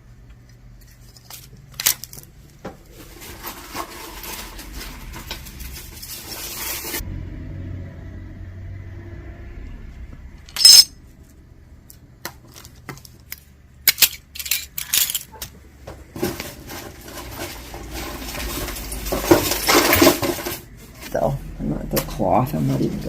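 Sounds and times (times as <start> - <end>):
jewelry clinking: 10.5 - 10.9
jewelry rustling: 10.5 - 10.9.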